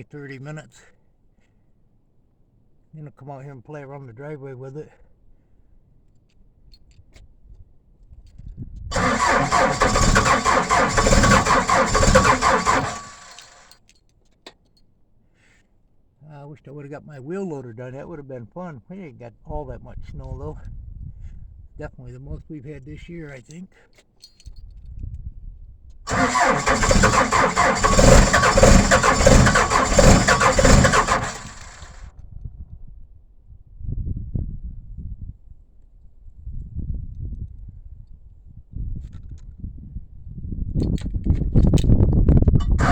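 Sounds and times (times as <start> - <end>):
cold engine clattering: 8.9 - 13.7, 26.1 - 32.1, 42.6 - 42.9.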